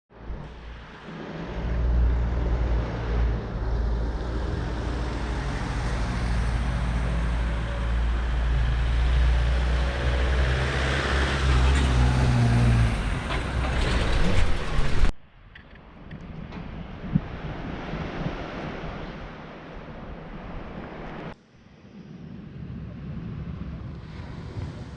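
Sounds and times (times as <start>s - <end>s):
traffic noise: 0.1s - 16.9s
faint wind: 0.1s - 24.9s.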